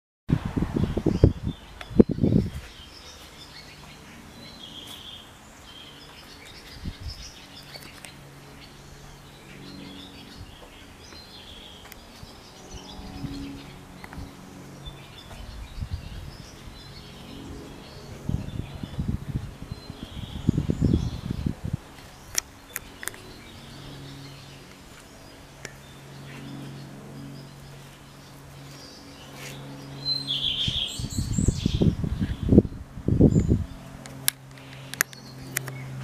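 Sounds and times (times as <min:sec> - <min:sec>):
birds chirping: 0:00.8 - 0:36.0.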